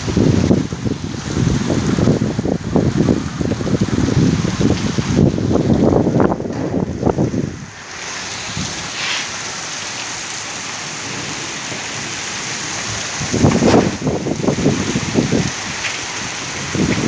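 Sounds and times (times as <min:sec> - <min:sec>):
heavy rain: 0:00.0 - 0:17.0
choppy low rumbling: 0:03.8 - 0:07.8.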